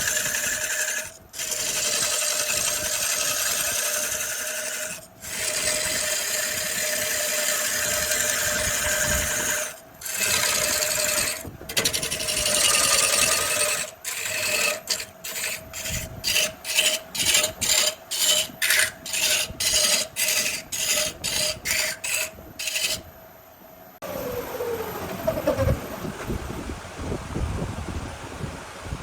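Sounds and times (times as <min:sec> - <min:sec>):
tool rasping on spinning wood: 0:00.0 - 0:23.1
wood lathe humming: 0:00.0 - 0:23.1.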